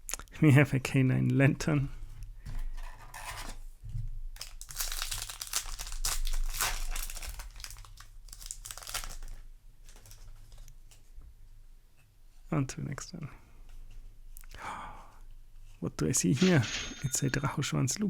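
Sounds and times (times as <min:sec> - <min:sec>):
foil wrapper crinkling and tearing: 0:04.4 - 0:10.4.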